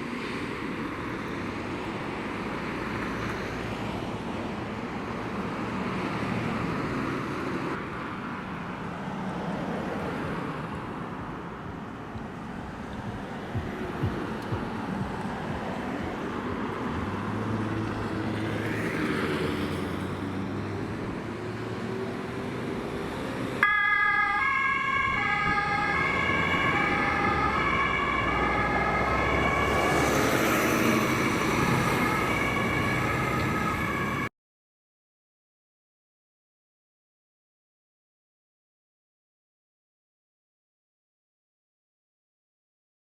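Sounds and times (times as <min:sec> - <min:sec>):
two-tone siren: 0:23.6 - 0:34.3.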